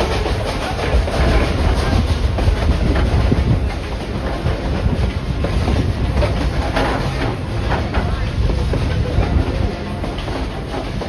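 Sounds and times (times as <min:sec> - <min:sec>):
steam train low rumble: 0:00.0 - 0:11.0
wheels clattering on track: 0:00.0 - 0:11.0.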